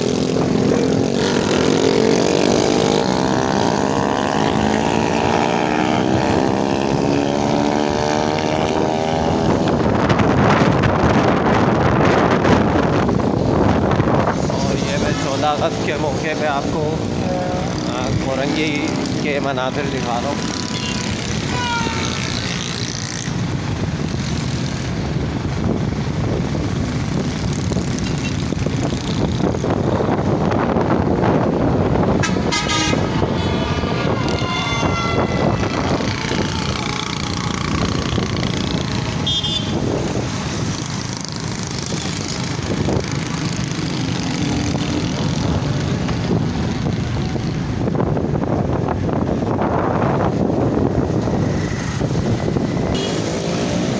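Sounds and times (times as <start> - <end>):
engines rumbling: 0.0 - 53.9
road noise: 0.0 - 53.9
vehicle horns honking: 20.5 - 22.3, 32.2 - 38.2, 38.8 - 40.0, 52.9 - 53.6.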